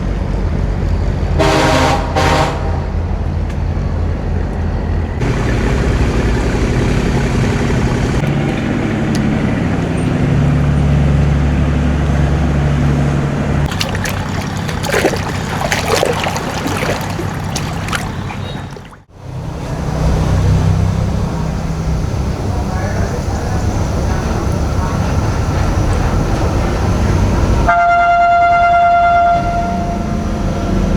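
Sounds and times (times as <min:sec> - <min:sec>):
boat engine running: 0:04.4 - 0:27.7
water rushing and splashing: 0:05.2 - 0:12.8, 0:13.6 - 0:19.1.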